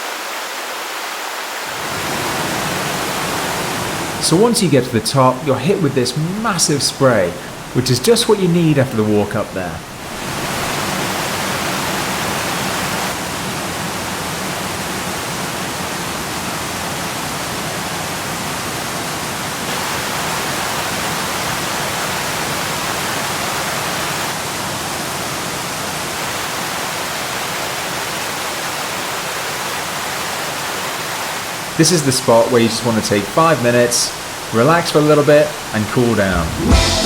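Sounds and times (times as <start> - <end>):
waterfall roaring: 0.0 - 37.0.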